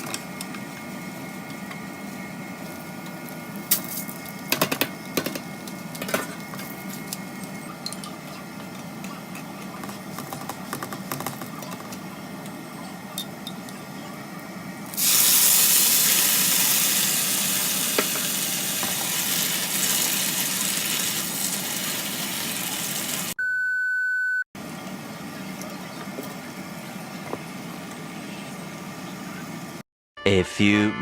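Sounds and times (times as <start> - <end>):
food sizzling in frying pan: 14.9 - 23.4.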